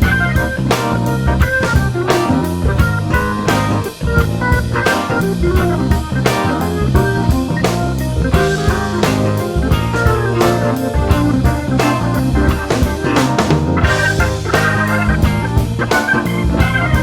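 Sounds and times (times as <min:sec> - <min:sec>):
instrumental blues band: 0:00.0 - 0:17.0.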